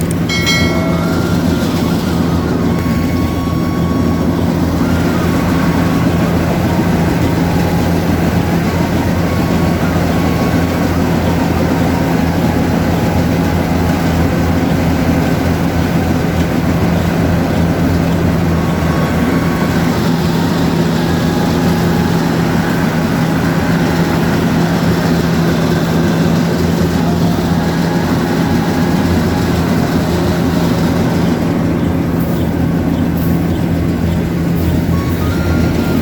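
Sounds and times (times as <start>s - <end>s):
combine harvester running: 0.0s - 36.0s.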